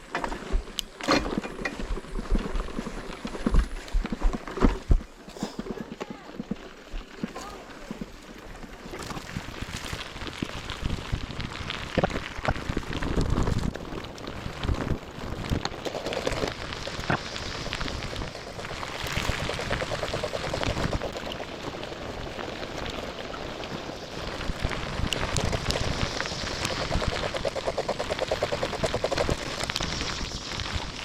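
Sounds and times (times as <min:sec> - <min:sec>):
crunching on gravel trail: 0:00.3 - 0:31.0
wind buffeting microphone: 0:07.4 - 0:31.0.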